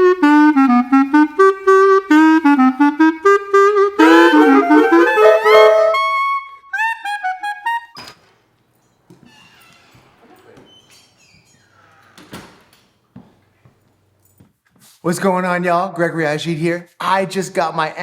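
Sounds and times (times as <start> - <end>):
clarinet playing a quick melody: 0.0 - 8.0.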